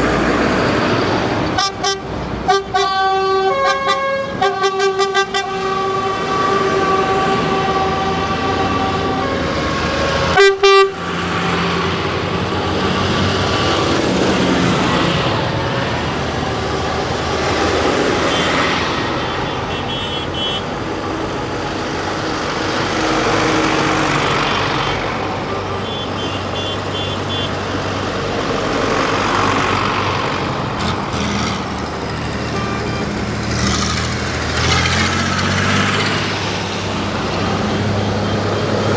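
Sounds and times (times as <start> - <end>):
tractors driving past: 0.0 - 38.9
horn blaring: 1.6 - 11.6, 17.5 - 21.0, 25.0 - 28.2, 32.0 - 34.0.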